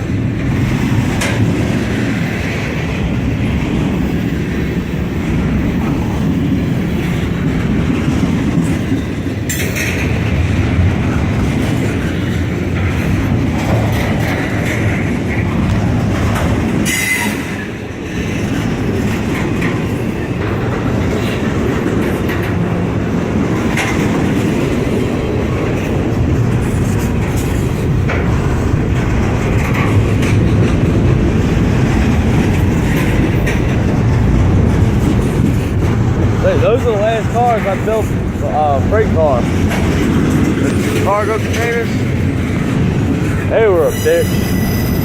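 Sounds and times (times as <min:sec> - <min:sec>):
train wheels rumbling on rail: 0:00.0 - 0:45.0
wheels clicking over rail joints: 0:00.0 - 0:45.0
wheel squeal: 0:43.8 - 0:45.0.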